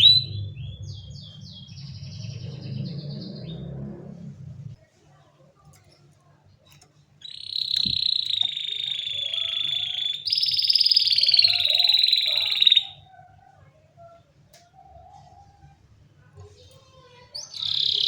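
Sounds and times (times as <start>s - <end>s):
canary trilling: 0.0s - 4.4s, 7.2s - 13.4s, 16.8s - 18.0s.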